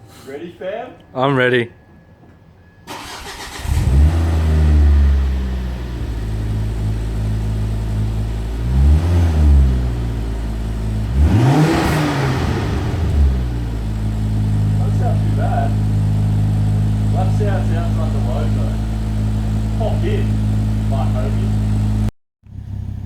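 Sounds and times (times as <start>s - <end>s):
car engine starting and revving: 2.8s - 23.0s.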